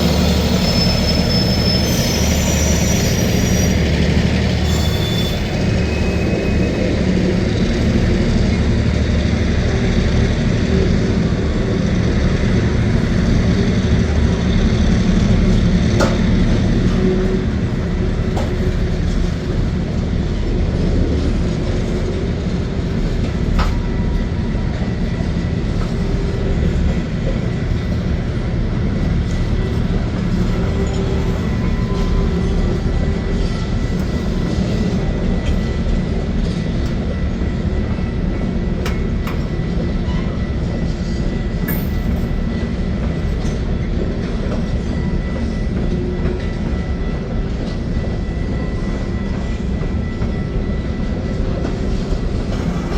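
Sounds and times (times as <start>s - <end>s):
wheels squealing: 0.0s - 7.0s
train wheels rumbling on rails: 0.0s - 52.9s.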